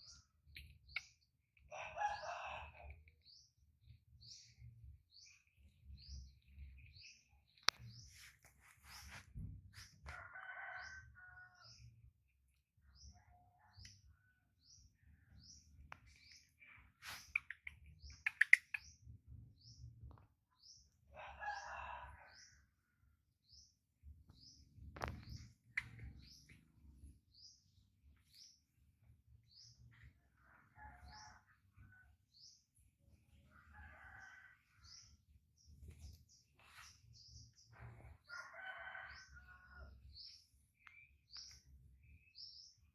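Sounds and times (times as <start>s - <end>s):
small bird chirping: 0.0s - 1.6s, 12.8s - 21.0s, 24.3s - 42.9s
rooster crowing: 10.1s - 11.6s, 21.2s - 22.4s, 33.6s - 34.6s, 38.3s - 39.9s.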